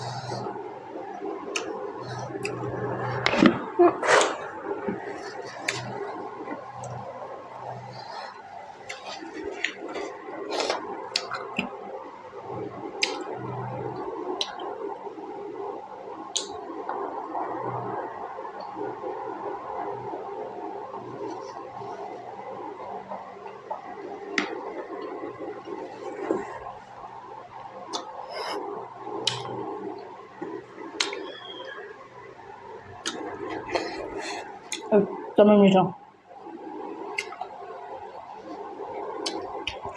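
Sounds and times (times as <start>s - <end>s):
chewing and mouth sounds: 4.1s - 7.1s, 7.8s - 11.8s, 29.1s - 31.4s, 33.0s - 34.9s
wet chewing: 7.8s - 11.7s
sharp wet smacks: 13.0s - 13.2s
mouth smacks: 27.9s - 28.6s, 29.2s - 29.6s, 33.0s - 34.9s, 37.1s - 37.5s.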